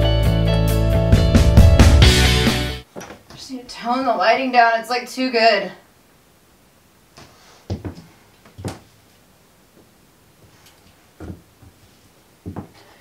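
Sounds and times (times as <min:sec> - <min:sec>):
soft knocks and thumps: 0:02.9 - 0:03.4, 0:07.7 - 0:08.9, 0:11.2 - 0:11.8, 0:12.4 - 0:12.8.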